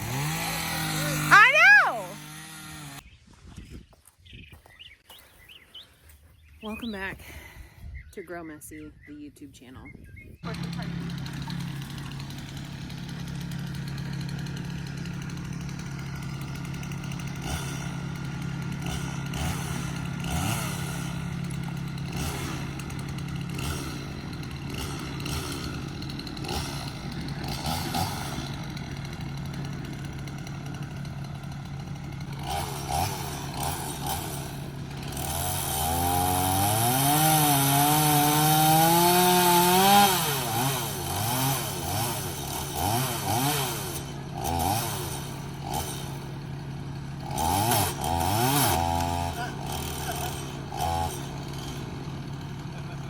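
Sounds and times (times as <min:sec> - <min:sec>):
chainsaw engine revving: 0:00.0 - 0:03.0, 0:10.4 - 0:53.0.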